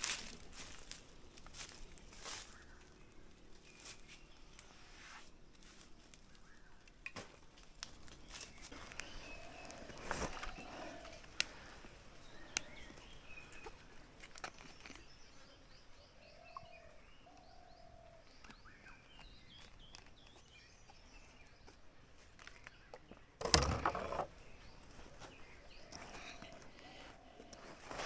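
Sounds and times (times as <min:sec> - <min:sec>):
birds chirping and whistling: 0:08.2 - 0:21.8, 0:22.6 - 0:28.0.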